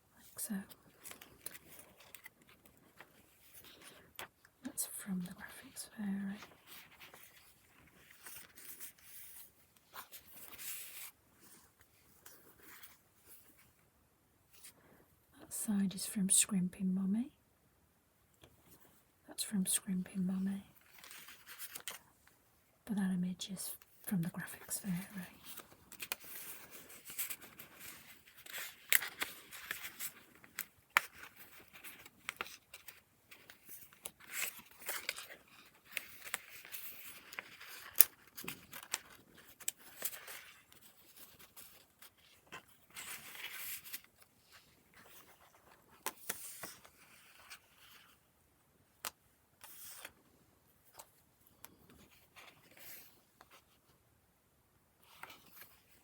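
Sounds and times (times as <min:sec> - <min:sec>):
paper rustling and scraping: 0:25.0 - 0:48.3.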